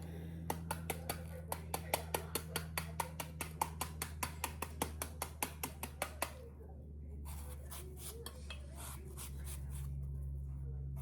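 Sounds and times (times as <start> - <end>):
steady low hum: 0.0 - 11.0
knife chopping on cutting board: 0.5 - 6.4.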